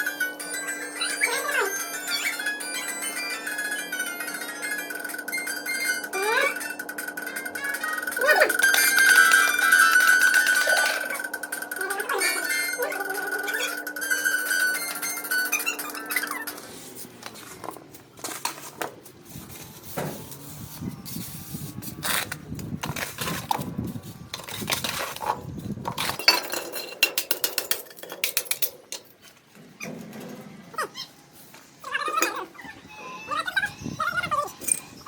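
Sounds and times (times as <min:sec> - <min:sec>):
pots and utensils clattering: 0:24.4 - 0:30.6.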